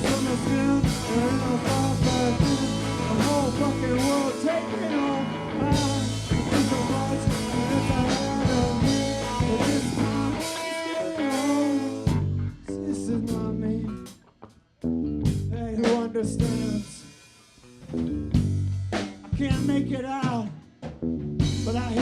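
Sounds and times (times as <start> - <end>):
electric guitar bending notes: 0.0 - 14.0
live rock band playing: 0.0 - 14.2, 14.9 - 22.0.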